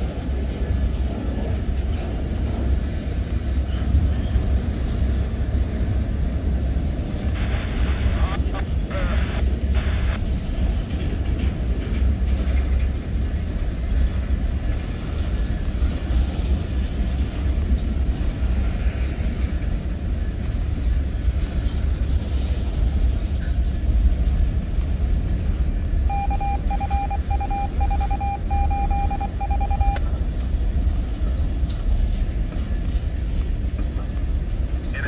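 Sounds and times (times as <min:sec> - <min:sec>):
freight train wheels rumbling: 0:00.0 - 0:35.0
rapid electronic beeping: 0:07.4 - 0:10.2, 0:26.1 - 0:30.0.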